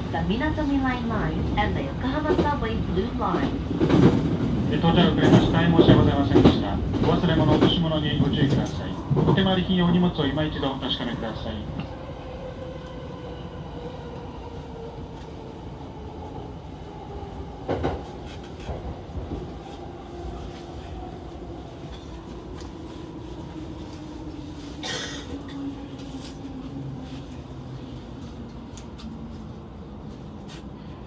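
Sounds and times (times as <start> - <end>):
train running noise: 0.1 - 10.7.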